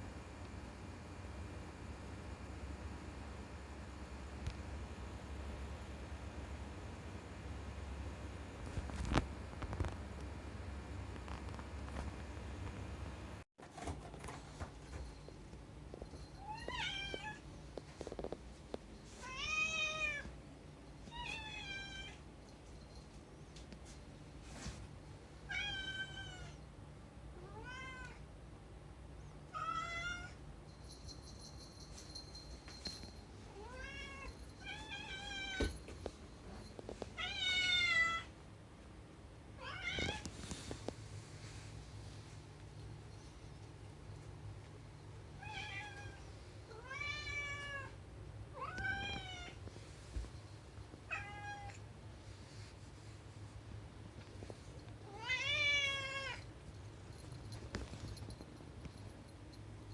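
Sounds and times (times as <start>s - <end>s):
cat meowing: 51.1s - 51.8s.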